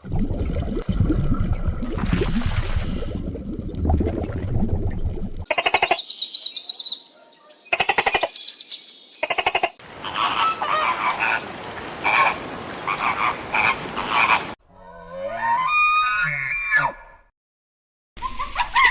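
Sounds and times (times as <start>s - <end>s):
animal calls in rapid pulses: 9.3s - 11.4s.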